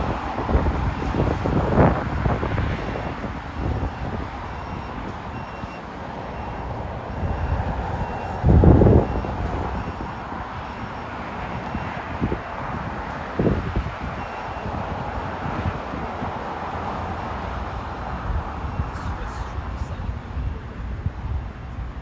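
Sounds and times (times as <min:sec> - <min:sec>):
wind buffeting microphone: 0:00.0 - 0:05.6, 0:06.2 - 0:17.2, 0:17.8 - 0:22.0
faint high beep: 0:04.6 - 0:08.4, 0:18.7 - 0:20.1
low engine rumble: 0:18.7 - 0:22.0.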